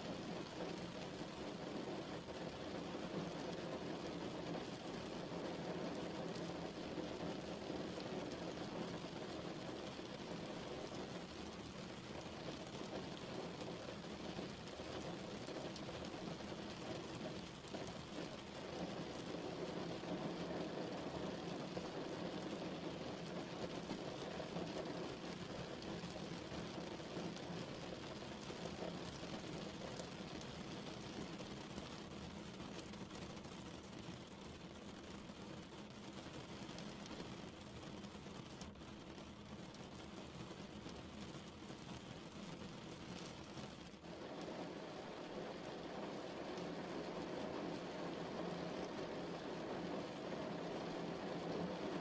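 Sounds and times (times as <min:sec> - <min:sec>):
rain falling: 0:00.0 - 0:52.0.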